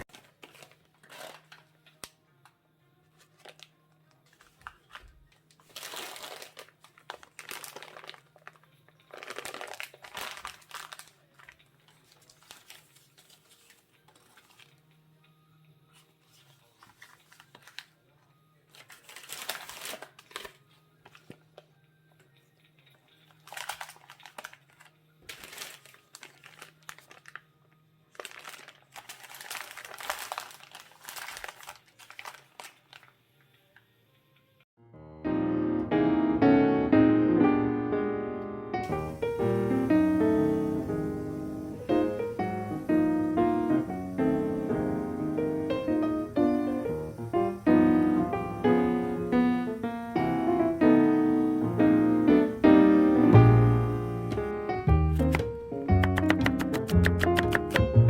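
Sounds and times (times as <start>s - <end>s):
plastic packaging crinkling: 0.0s - 2.2s, 3.1s - 14.9s, 15.9s - 18.0s, 18.7s - 21.7s, 23.1s - 33.2s.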